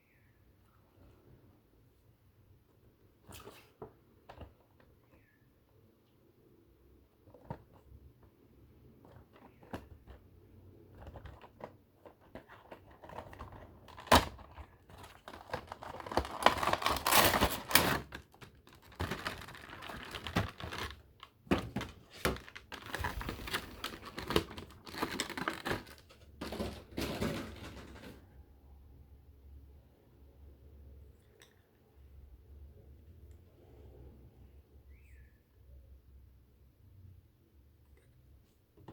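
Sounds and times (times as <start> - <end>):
plastic packaging crinkling: 12.2 - 28.1.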